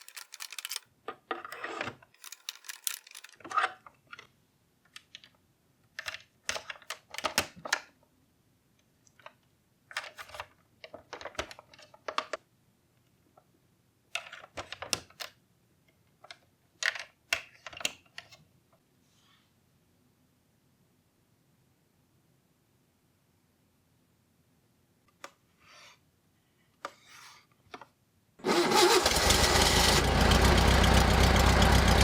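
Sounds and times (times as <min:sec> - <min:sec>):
plastic parts clicking: 0:00.0 - 0:04.3.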